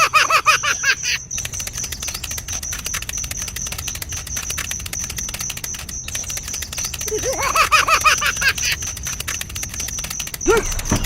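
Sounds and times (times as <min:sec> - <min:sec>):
small electric motor clicking: 0:00.0 - 0:10.8.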